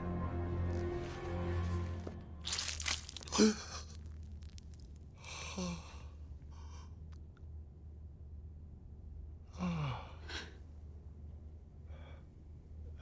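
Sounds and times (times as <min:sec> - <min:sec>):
low steady hum: 0:00.0 - 0:13.0
person sighing: 0:03.2 - 0:04.0.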